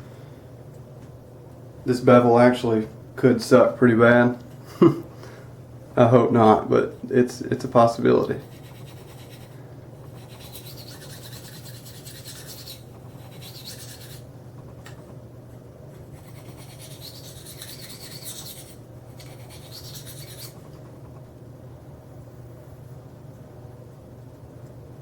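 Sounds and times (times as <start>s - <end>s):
knife scraping on ceramic stone: 8.4s - 14.2s, 16.2s - 20.6s.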